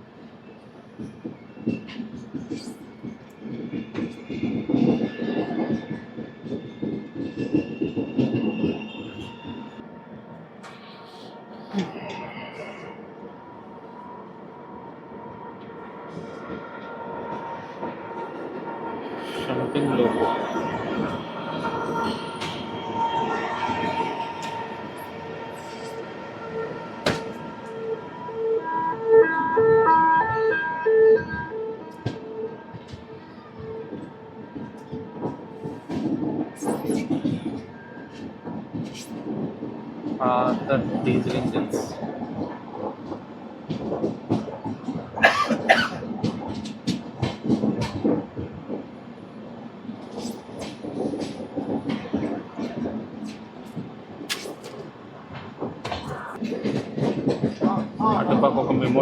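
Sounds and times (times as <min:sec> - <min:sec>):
train wheels clattering on rails: 0:00.9 - 0:09.8, 0:19.4 - 0:27.9, 0:31.9 - 0:59.0.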